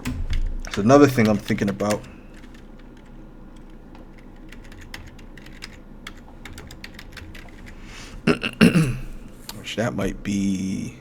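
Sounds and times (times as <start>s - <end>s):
computer keyboard typing: 0.0s - 9.7s
man speaking: 0.7s - 2.2s, 8.3s - 11.0s.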